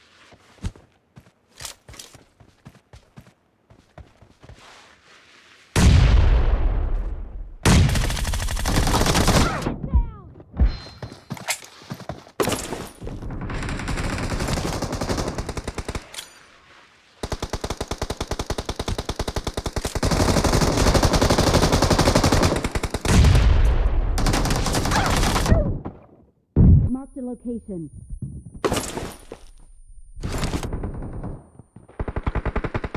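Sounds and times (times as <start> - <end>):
video game automatic gunfire: 30.2 - 32.9.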